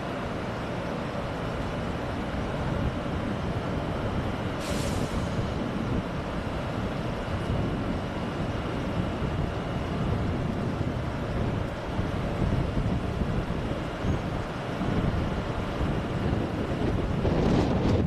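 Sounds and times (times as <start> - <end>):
train rumbling on track: 0.0 - 18.0
short hiss: 4.6 - 5.5.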